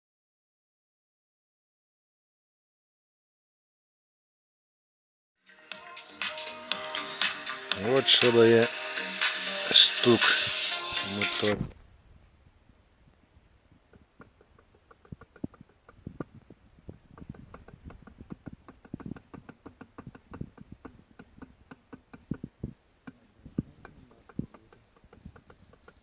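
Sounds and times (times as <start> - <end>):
motorcycle engine knocking: 13.9 - 26.0.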